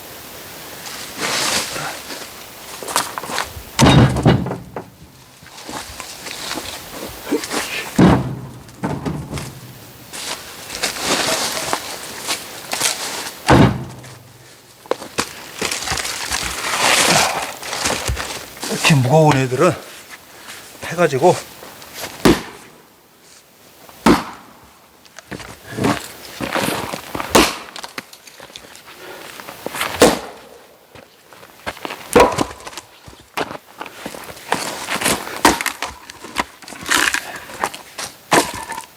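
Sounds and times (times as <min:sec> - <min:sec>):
wood scraping and rustling: 0:00.8 - 0:22.7, 0:25.2 - 0:30.0, 0:31.4 - 0:38.9
heavy wooden knocks of logs: 0:03.8 - 0:05.1, 0:08.0 - 0:09.7, 0:13.5 - 0:14.3, 0:22.2 - 0:22.6, 0:27.3 - 0:27.7, 0:32.1 - 0:32.8
log thudding down: 0:03.8 - 0:11.8, 0:12.7 - 0:18.7, 0:22.2 - 0:22.6, 0:32.1 - 0:32.8.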